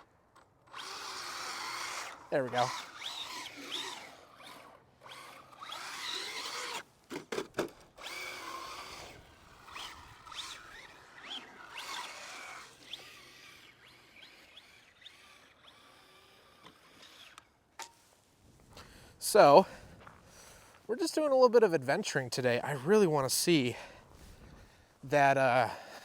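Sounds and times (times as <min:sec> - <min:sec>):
electric motor whining: 0:00.0 - 0:17.6.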